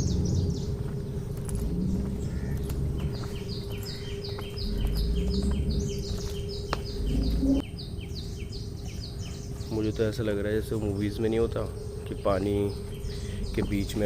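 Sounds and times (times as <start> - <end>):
low rumble: 0.0 - 9.0
birds chirping: 0.0 - 14.0
faint steady hum: 0.0 - 14.0.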